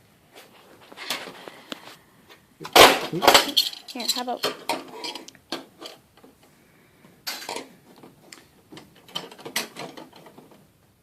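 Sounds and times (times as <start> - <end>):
metal door hardware rattling: 2.6 - 6.0, 8.7 - 10.6.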